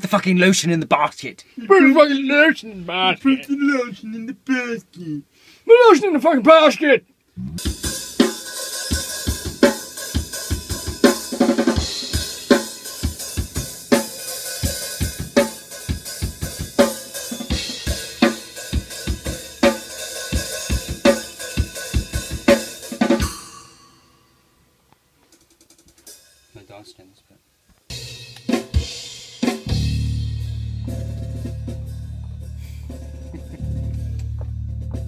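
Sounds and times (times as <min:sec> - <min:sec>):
drum kit playing steady beat: 0:07.5 - 0:24.0, 0:25.2 - 0:26.9, 0:27.9 - 0:35.0.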